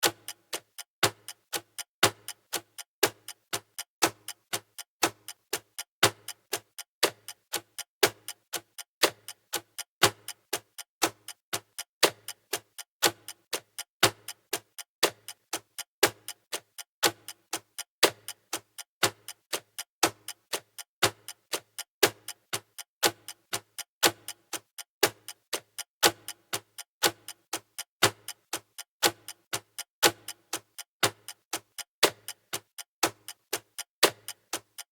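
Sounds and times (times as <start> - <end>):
clock ticking: 0.0 - 34.9.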